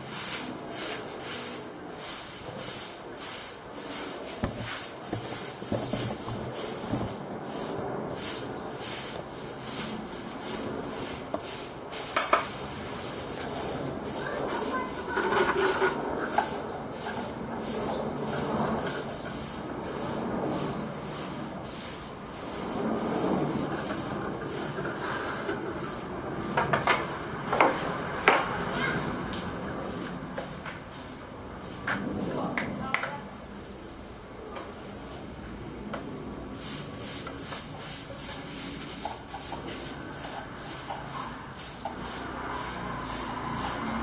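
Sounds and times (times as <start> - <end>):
hand tool rasping strokes: 4.4 - 7.2
steady background noise: 4.4 - 18.4.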